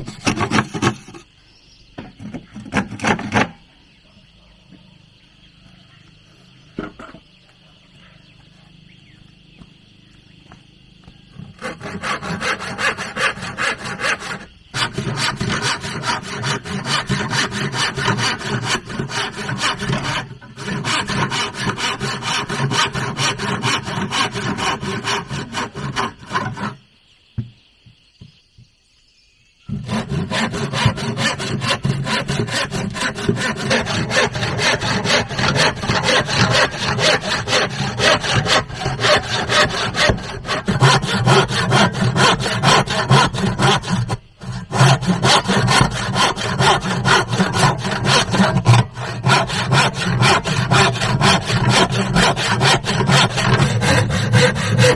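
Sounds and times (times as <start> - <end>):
hand saw cutting wood: 0.0 - 1.3, 2.2 - 3.6, 11.4 - 26.8, 29.7 - 54.9.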